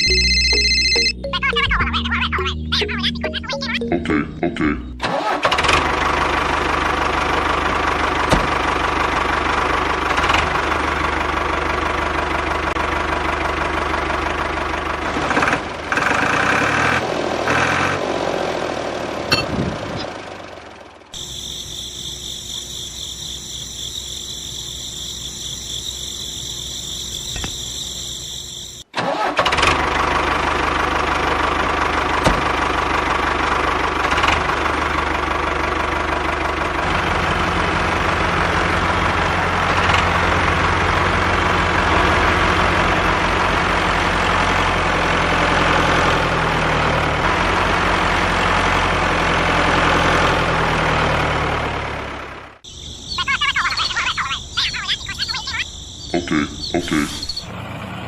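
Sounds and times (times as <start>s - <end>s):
engine running with low chug: 4.6s - 54.6s
high motor whine: 21.2s - 28.8s.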